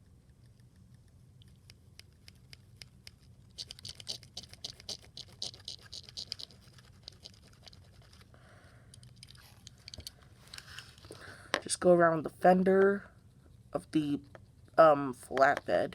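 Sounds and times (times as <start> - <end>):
scattered ticks: 0.2 - 11.7, 12.8 - 15.9
scratchy colouring strokes: 0.4 - 8.4.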